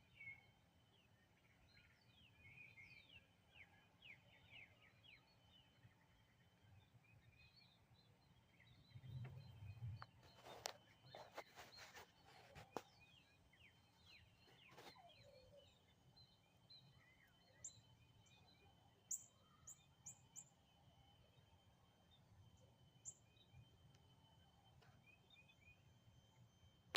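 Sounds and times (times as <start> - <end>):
small birds chirping: 0.0 - 26.8
light knocks and rustles: 9.1 - 13.0.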